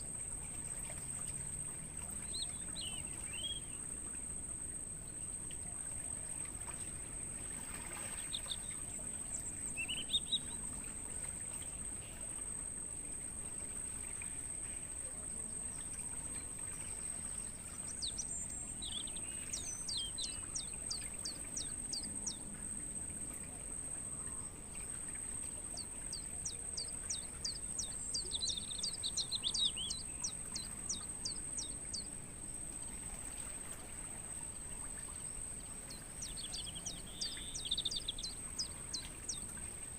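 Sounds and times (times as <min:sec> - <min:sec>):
crickets trilling: 0:00.0 - 0:39.9
small bird calling: 0:08.0 - 0:10.6, 0:17.1 - 0:22.6, 0:25.4 - 0:32.3, 0:34.4 - 0:39.9.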